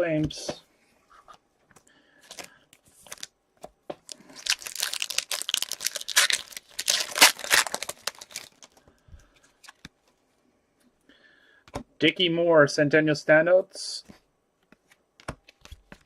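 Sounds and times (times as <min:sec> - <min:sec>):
card pack wrapper crinkling: 0:02.3 - 0:03.3, 0:04.0 - 0:08.8.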